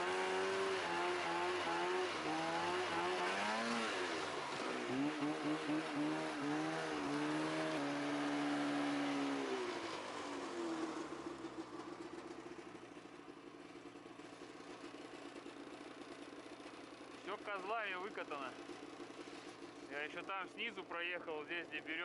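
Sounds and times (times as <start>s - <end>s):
snowmobile engine revving and idling: 0.0s - 22.0s.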